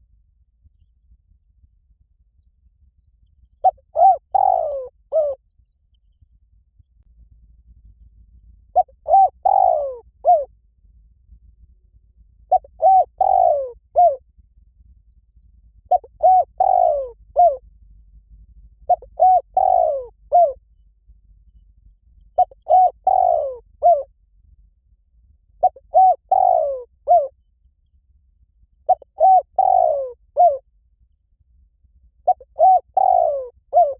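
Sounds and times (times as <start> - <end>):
dove cooing: 3.6 - 5.4, 8.7 - 10.5, 12.5 - 14.2, 15.9 - 17.6, 18.9 - 20.6, 22.4 - 24.1, 25.6 - 27.3, 28.9 - 30.6, 32.2 - 33.9.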